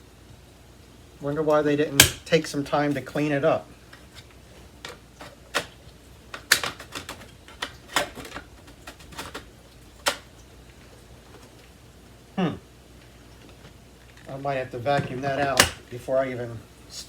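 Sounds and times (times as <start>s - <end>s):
plastic vacuum parts clicking: 6.3s - 10.3s, 15.0s - 15.8s.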